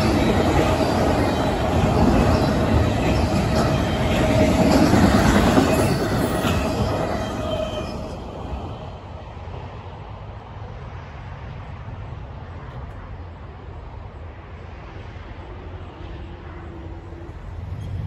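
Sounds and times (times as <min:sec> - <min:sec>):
freight train wheels squealing: 0:00.0 - 0:09.0, 0:16.0 - 0:18.0.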